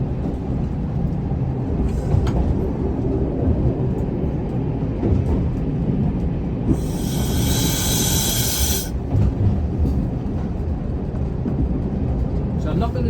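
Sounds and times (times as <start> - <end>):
railcar engine and wheels rumbling: 0.0 - 13.0.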